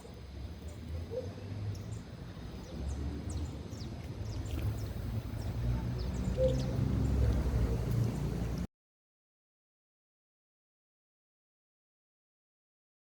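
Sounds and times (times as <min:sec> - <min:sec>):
canaries chirping: 0:02.8 - 0:07.2.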